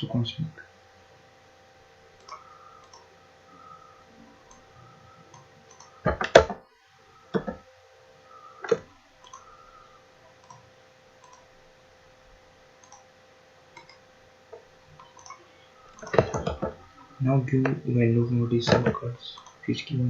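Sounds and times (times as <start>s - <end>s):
computer mouse clicking: 2.2s - 3.7s, 4.5s - 4.7s, 5.3s - 6.6s, 7.3s - 7.6s, 8.6s - 9.5s, 10.3s - 11.5s, 12.8s - 13.1s, 13.7s - 14.0s, 15.0s - 16.8s, 18.7s - 19.6s.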